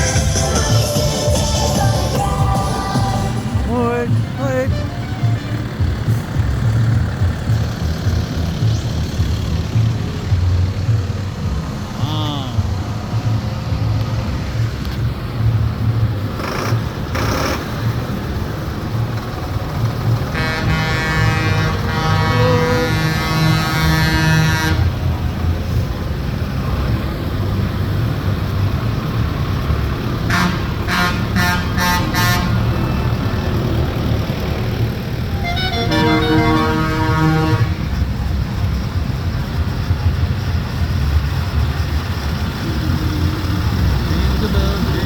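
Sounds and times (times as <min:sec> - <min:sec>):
tractor engines rumbling: 0:00.0 - 0:45.0
horn blasts and toots: 0:04.1 - 0:05.9, 0:20.3 - 0:25.0, 0:30.2 - 0:32.8, 0:35.3 - 0:38.1.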